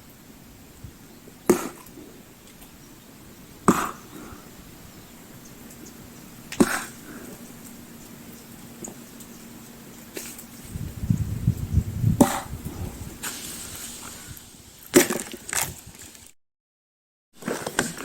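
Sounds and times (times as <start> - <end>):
low steady hum: 0.0 - 14.9
axe blow: 6.5 - 7.0, 12.2 - 12.6
axe splitting firewood: 17.4 - 18.0.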